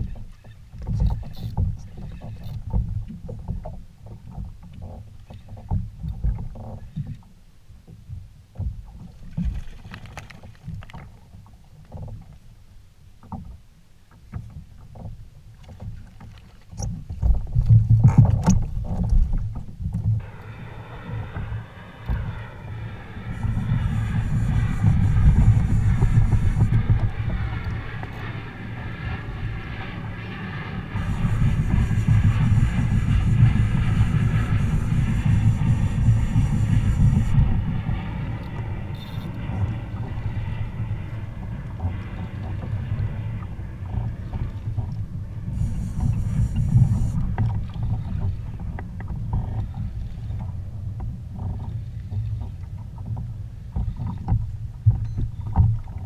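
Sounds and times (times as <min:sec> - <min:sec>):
wind rumble on microphone: 0:00.0 - 0:56.0
water sloshing against kayak hull: 0:41.1 - 0:56.0.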